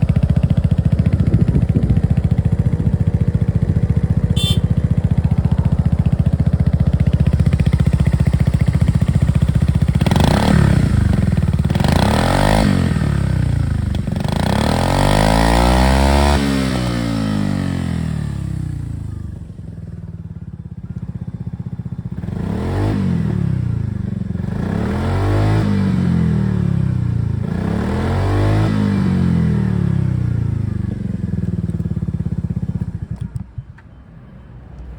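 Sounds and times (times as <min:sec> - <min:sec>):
scooter engine idling and revving: 0:00.0 - 0:34.1.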